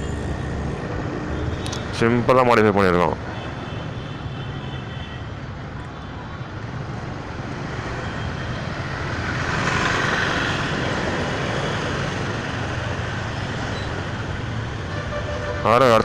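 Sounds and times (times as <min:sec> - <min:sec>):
road traffic engine hum: 0:00.0 - 0:16.0.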